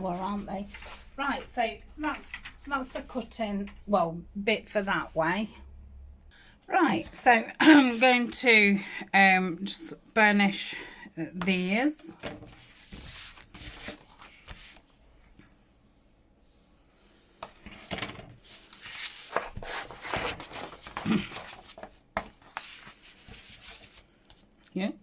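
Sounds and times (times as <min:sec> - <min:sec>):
tool scraping over paper: 0:16.6 - 0:24.0.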